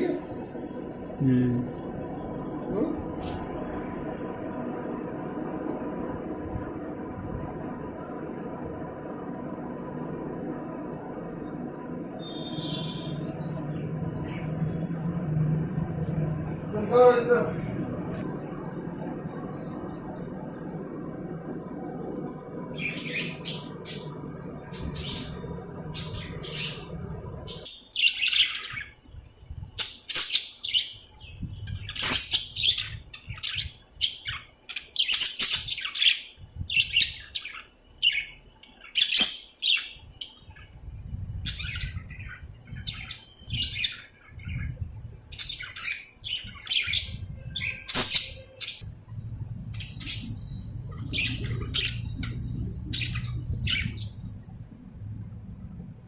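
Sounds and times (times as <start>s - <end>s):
birds chirping and squawking: 9.9s - 29.0s, 29.8s - 55.0s.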